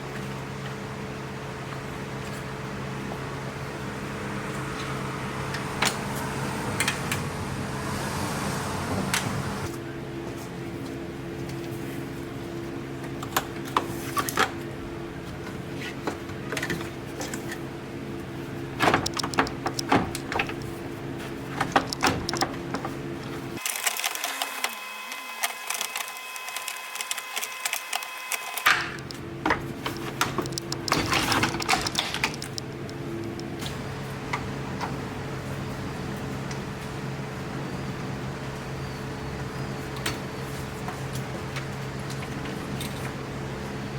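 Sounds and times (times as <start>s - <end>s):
hand tools clicking on metal: 18.9s - 20.7s, 21.6s - 22.6s, 29.9s - 33.5s.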